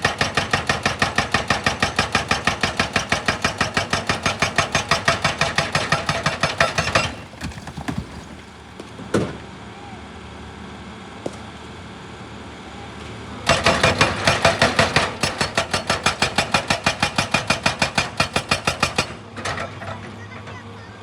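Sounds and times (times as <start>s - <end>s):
hydraulic breaker hammering: 0.0s - 9.4s, 13.5s - 20.2s
excavator engine running: 0.0s - 21.0s.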